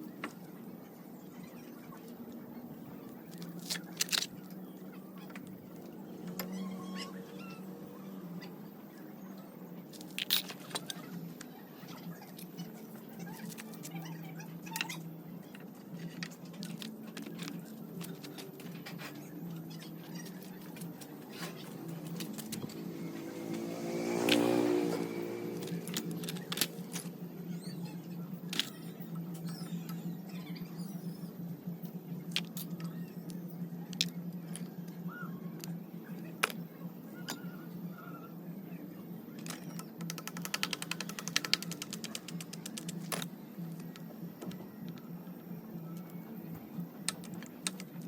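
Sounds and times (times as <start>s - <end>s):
faint short squeaks: 6.2s - 8.5s.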